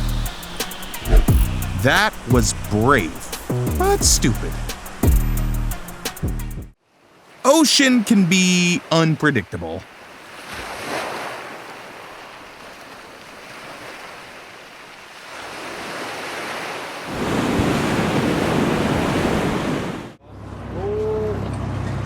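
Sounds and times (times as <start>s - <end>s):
sea waves breaking: 0.2s - 5.0s, 6.9s - 20.2s
wind buffeting microphone: 0.9s - 2.3s.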